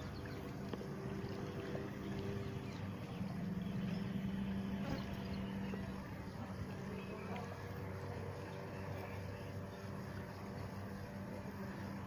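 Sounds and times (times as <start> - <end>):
motor humming: 0.0 - 12.0
outdoor background noise: 0.0 - 12.0.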